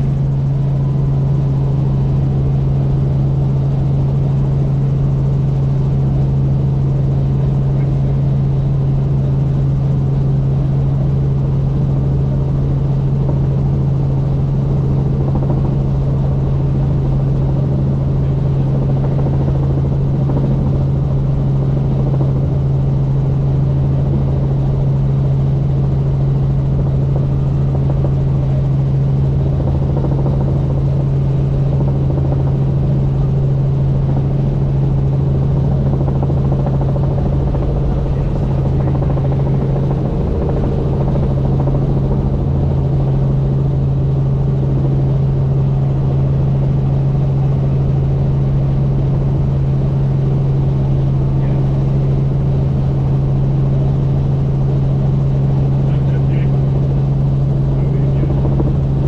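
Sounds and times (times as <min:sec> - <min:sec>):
helicopter drone: 0:00.0 - 0:59.0.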